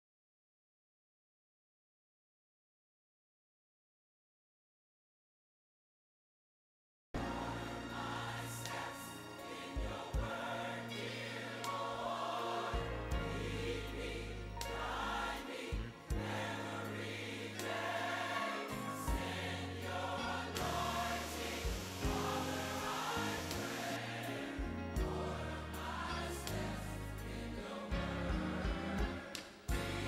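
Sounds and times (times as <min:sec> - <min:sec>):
choir singing: 0:07.2 - 0:30.0.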